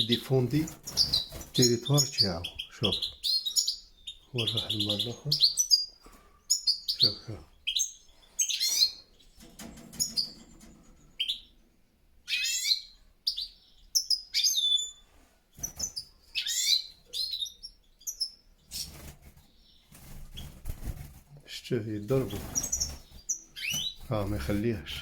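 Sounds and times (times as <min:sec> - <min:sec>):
finches twittering chirps: 0:00.0 - 0:11.6, 0:12.2 - 0:21.1, 0:21.8 - 0:25.0.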